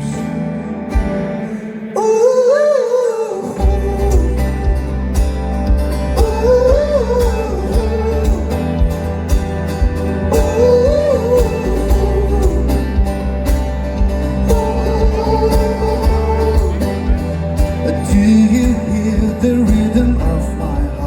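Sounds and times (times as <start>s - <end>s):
guitar: 0.0s - 21.0s
bass: 3.6s - 21.0s
drum beat: 3.6s - 21.0s
lead melody line: 3.6s - 21.0s.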